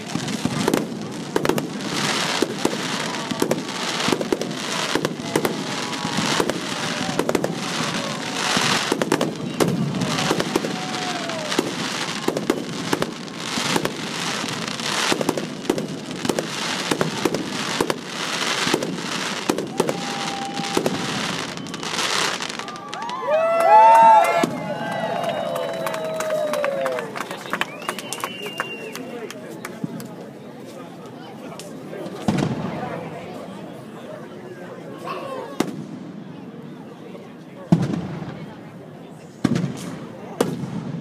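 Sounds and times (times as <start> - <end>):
firework crackling: 0.0 - 25.4.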